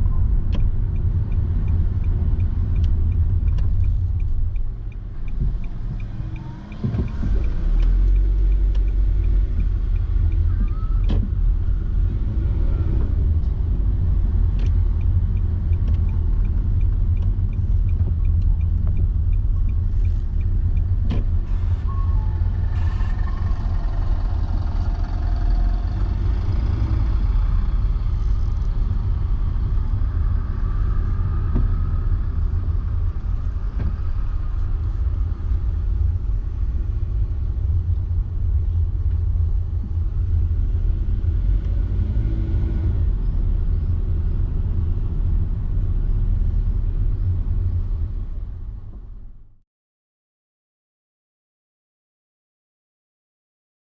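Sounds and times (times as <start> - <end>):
car road and engine rumble: 0.0 - 49.6
light regular ticking: 0.2 - 10.8, 14.0 - 21.5.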